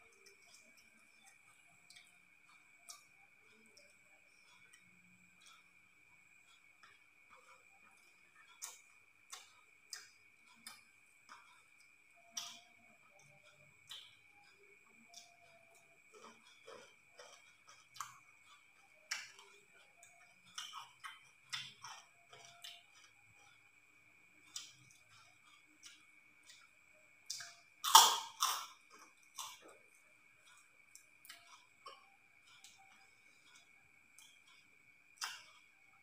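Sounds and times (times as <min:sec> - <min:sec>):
faint steady high tone: 0:00.0 - 0:36.0
chewing and lip smacking: 0:06.4 - 0:23.6, 0:24.4 - 0:36.0.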